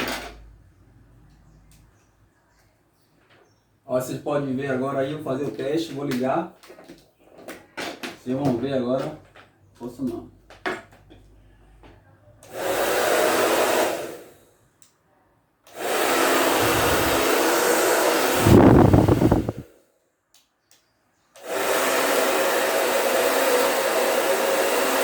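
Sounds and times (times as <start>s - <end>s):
hair dryer running: 12.4s - 14.4s, 15.7s - 19.7s, 21.4s - 25.0s.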